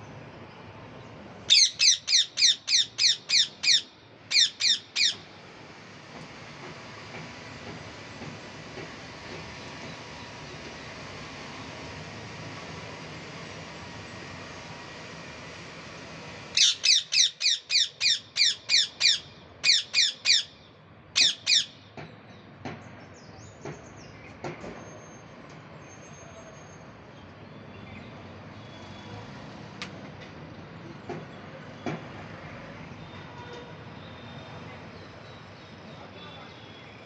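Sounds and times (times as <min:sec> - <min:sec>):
parrot squawking: 0:01.5 - 0:05.2, 0:16.6 - 0:20.6, 0:21.2 - 0:21.8.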